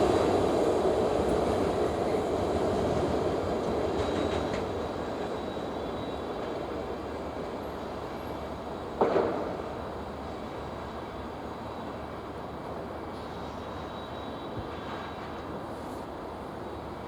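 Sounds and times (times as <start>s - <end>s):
freight train wagons rumbling: 0.0s - 9.9s.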